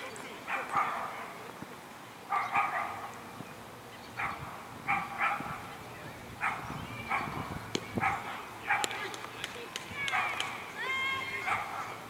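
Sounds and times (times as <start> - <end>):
dog barking: 0.5 - 1.2, 2.3 - 3.1, 4.2 - 5.6, 6.4 - 7.4, 8.0 - 9.0, 10.1 - 10.6, 11.4 - 12.0.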